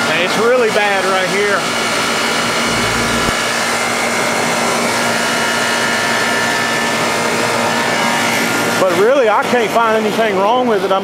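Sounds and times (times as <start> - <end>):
air conditioner fan rushing: 2.0 - 4.5
hum and whine: 2.4 - 4.2
low rumble: 2.6 - 3.8.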